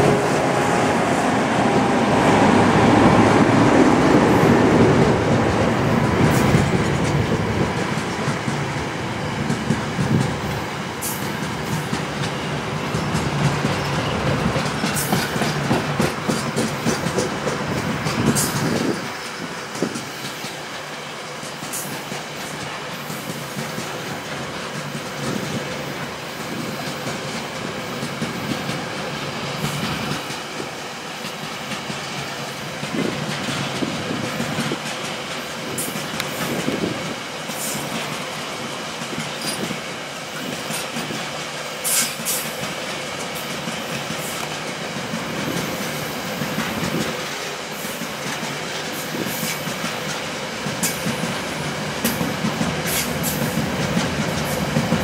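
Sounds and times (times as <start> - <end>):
diesel locomotive engines droning: 0.0 - 55.0
low train rumble: 0.0 - 55.0
train wheels clacking over rail joints: 2.8 - 55.0.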